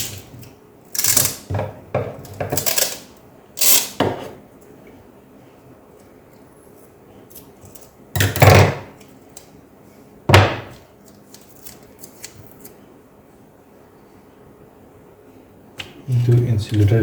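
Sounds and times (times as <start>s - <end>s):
tape ripping: 2.6s - 4.0s.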